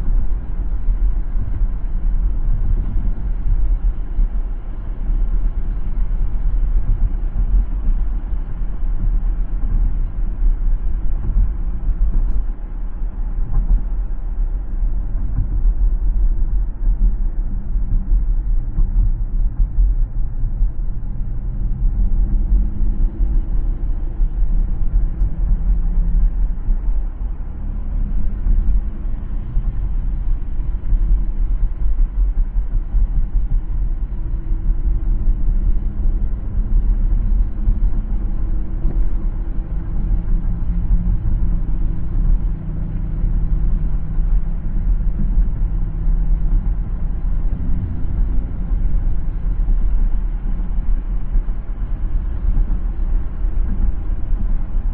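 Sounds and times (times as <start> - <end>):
car driving road rumble: 0.0 - 54.9.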